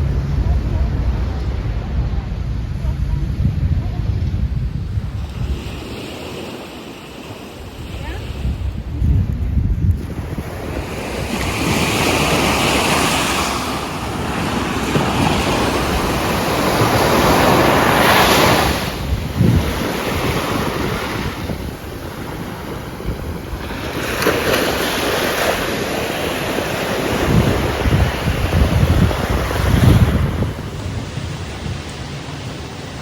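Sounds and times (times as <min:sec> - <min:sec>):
wind buffeting microphone: 0:00.0 - 0:33.0
rushing water: 0:10.0 - 0:33.0.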